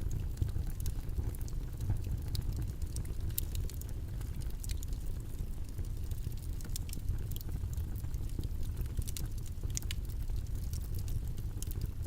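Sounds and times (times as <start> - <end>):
faint clicks and crackles: 0.0 - 12.0.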